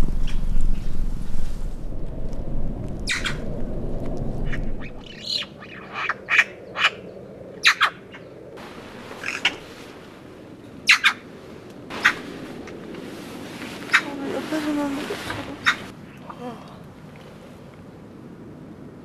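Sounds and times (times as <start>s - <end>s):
low rumbling noise: 0.0s - 19.0s
wild birds calling: 3.0s - 3.5s, 4.4s - 9.8s, 10.5s - 13.1s, 13.7s - 16.3s.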